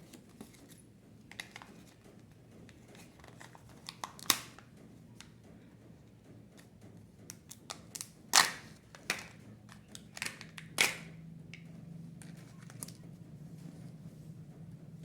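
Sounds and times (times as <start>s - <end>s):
plastic capsule snapping open: 3.8s - 4.5s, 7.7s - 11.1s.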